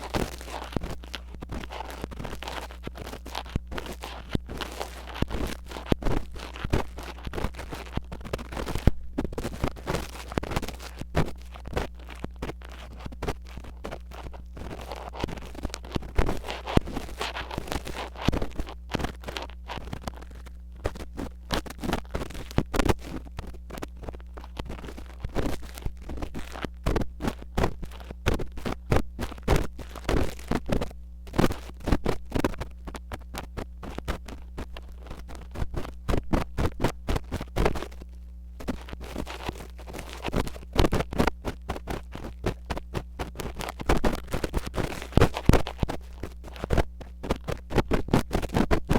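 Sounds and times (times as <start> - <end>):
ear pick scratching microphone: 0.0 - 48.9
steady low hum: 0.0 - 48.9.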